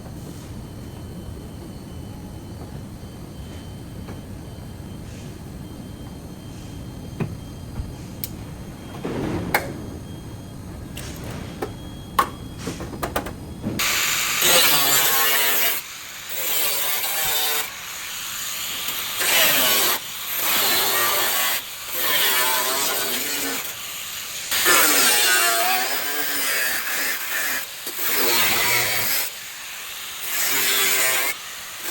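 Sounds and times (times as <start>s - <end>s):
power tool on metal: 13.8s - 31.9s.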